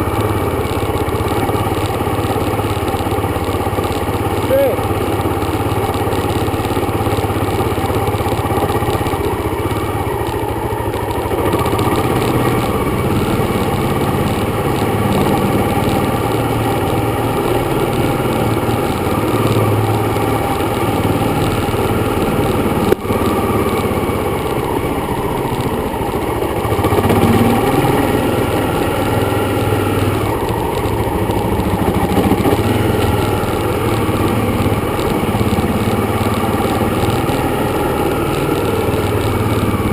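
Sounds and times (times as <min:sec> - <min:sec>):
dirt bike engine running: 0:00.0 - 0:39.9
broad rush of noise: 0:11.3 - 0:39.9.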